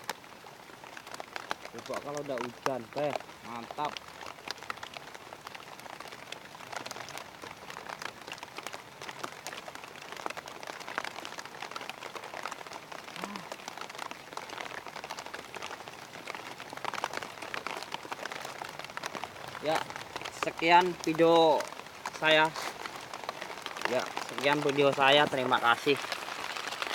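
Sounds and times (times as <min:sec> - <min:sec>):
rain pattering: 0:00.0 - 0:26.9.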